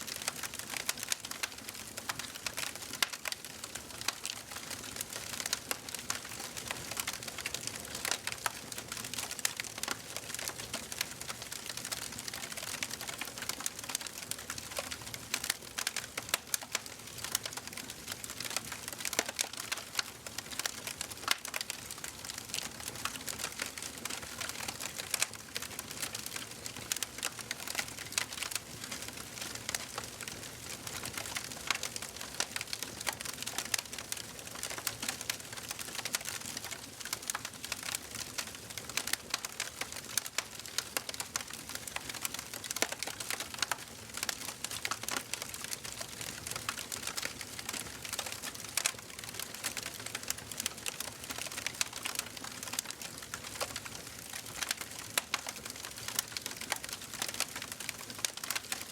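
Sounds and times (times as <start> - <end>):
wood fire crackling and popping: 0.0 - 58.9.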